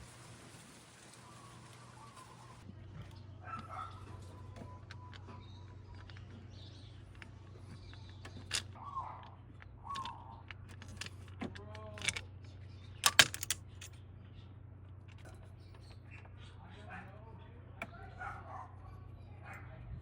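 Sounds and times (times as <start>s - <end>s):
clicks and small knocks: 4.0s - 14.0s.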